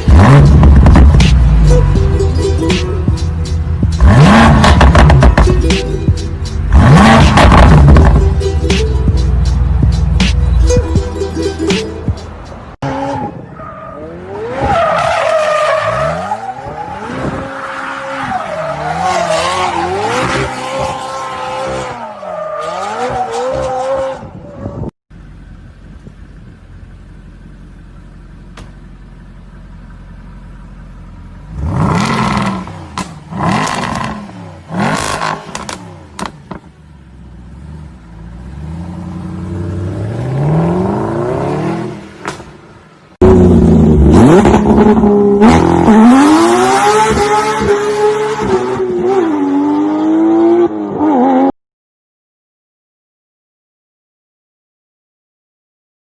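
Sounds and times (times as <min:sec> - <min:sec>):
sports car engines revving: 0:00.0 - 0:10.8, 0:25.2 - 0:51.5.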